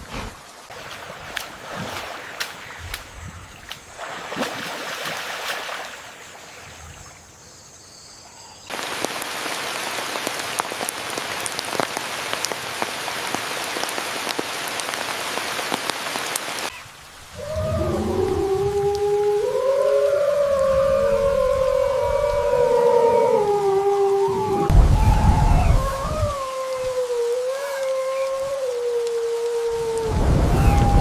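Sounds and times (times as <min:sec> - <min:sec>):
rain drops ticking: 0:08.7 - 0:19.5, 0:21.4 - 0:31.0
low sliding wavering tones: 0:24.1 - 0:28.8, 0:30.4 - 0:31.0.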